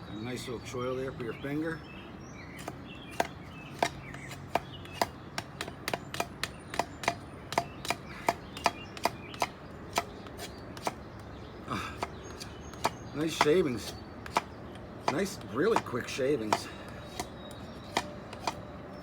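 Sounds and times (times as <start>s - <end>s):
knife shaving wooden stick: 12.3s - 18.6s.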